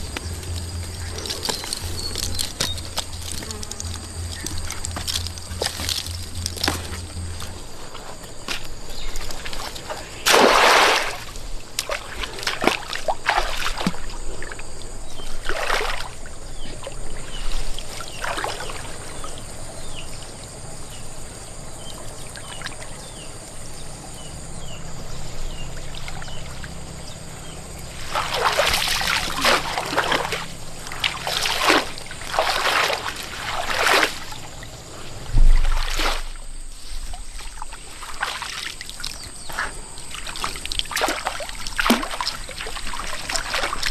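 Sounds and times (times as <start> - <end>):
water trickling: 0.0 - 8.4, 35.4 - 43.9
water splashing and sloshing: 0.0 - 20.0, 25.4 - 43.9.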